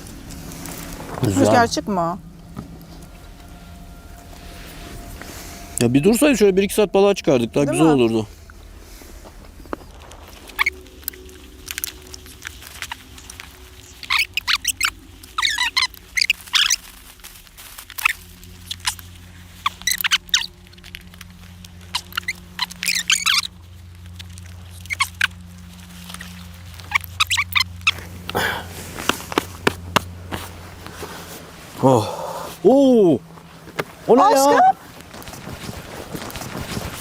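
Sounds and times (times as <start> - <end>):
low steady hum: 0.0 - 37.0
small birds chirping and trilling: 12.8 - 16.9, 21.8 - 28.6.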